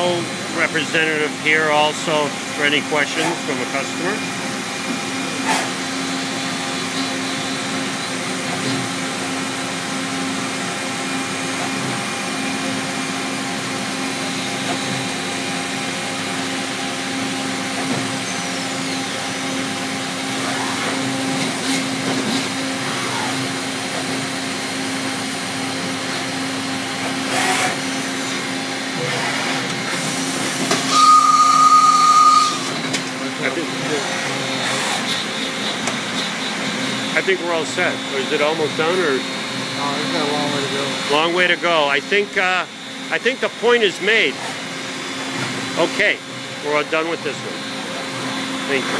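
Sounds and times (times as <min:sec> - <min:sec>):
machine humming with tone: 0:03.6 - 0:41.4.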